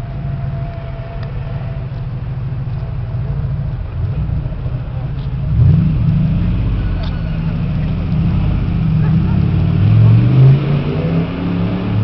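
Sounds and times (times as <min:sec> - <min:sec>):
race car engine at low revs: 0:00.0 - 0:12.0.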